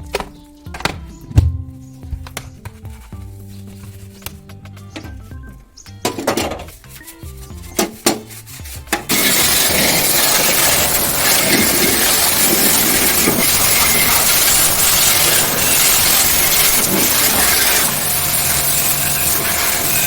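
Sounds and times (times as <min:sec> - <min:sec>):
background music: 0:00.0 - 0:09.2
high-pressure cleaning jet hissing: 0:09.1 - 0:20.0
machine hum: 0:09.1 - 0:20.0.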